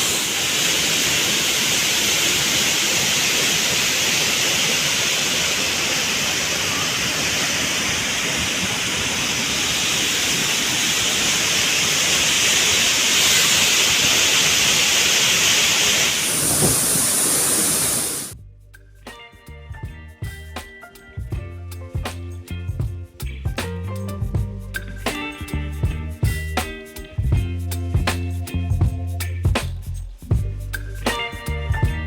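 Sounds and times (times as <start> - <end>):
waterfall rushing: 0.0 - 18.4
background music with a beat: 18.4 - 32.0.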